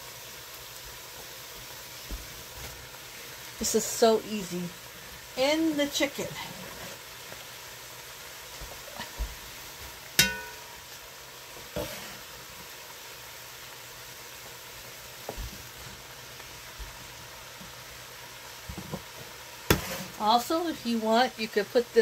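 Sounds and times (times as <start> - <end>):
vegetables sizzling in a pot: 0.0 - 22.0
sharp metallic clink: 10.2 - 10.7.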